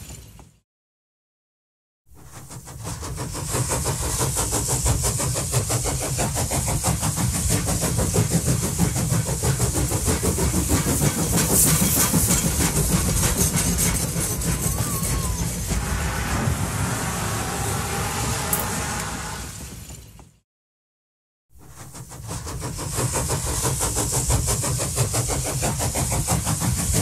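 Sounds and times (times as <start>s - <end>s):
train rumbling with fast clicking: 2.1s - 20.4s, 21.6s - 27.0s.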